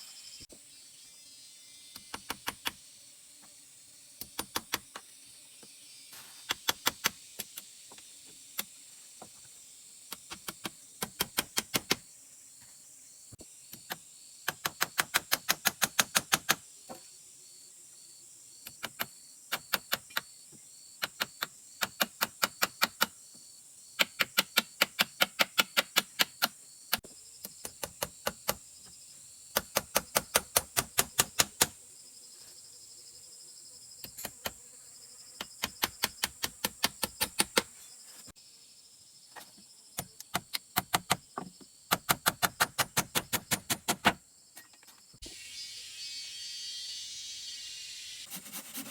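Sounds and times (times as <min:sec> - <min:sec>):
high insect drone: 0:00.0 - 0:42.4, 0:44.3 - 0:48.9.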